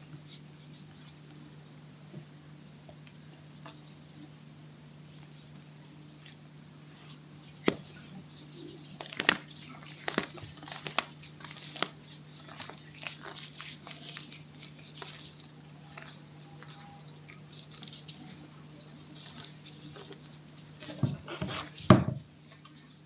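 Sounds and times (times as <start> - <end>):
faint steady hum: 0.0 - 23.0
chalk crunching: 5.2 - 23.0.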